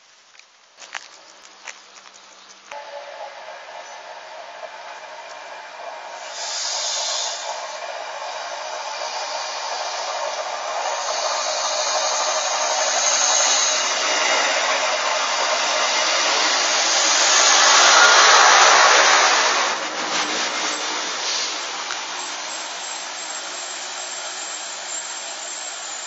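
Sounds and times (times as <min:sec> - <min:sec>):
diesel railcar passing: 0:00.0 - 0:26.0
brief hiss: 0:06.2 - 0:07.8.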